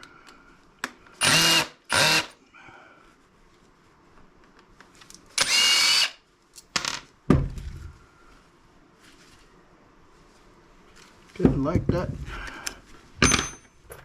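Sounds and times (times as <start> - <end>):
power drill whirring: 1.2 - 2.4, 5.4 - 6.2.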